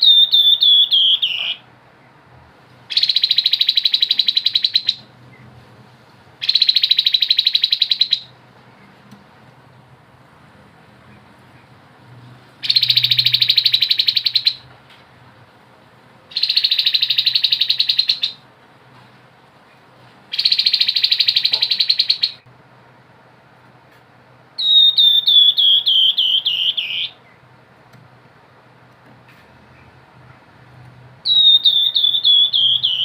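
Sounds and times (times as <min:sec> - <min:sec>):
bird whistled notes: 0:00.0 - 0:01.6, 0:12.6 - 0:14.6, 0:16.3 - 0:18.4, 0:20.3 - 0:22.4, 0:24.6 - 0:27.2, 0:31.2 - 0:33.0.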